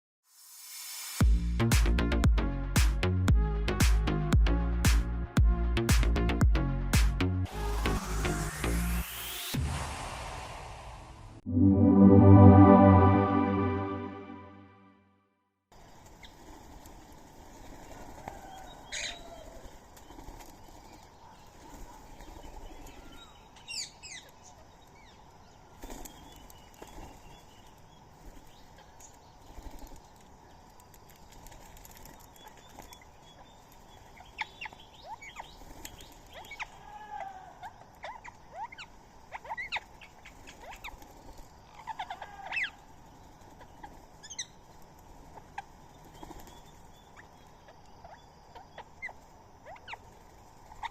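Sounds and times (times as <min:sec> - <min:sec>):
birds chirping and calling: 0:41.7 - 0:42.8.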